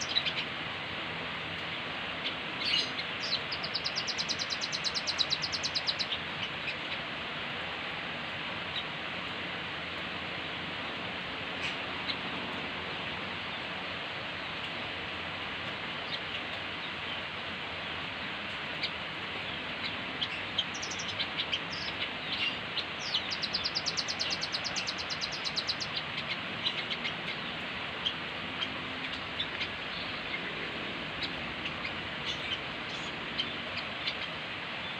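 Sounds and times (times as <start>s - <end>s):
bird chirping: 0.0s - 0.6s, 2.2s - 7.0s, 18.7s - 34.9s.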